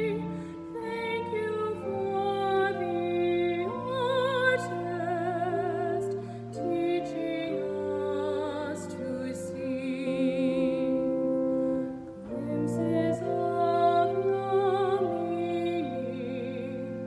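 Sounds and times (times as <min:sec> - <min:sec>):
person singing with vibrato: 0:00.0 - 0:17.0
sustained accompaniment: 0:00.0 - 0:17.0.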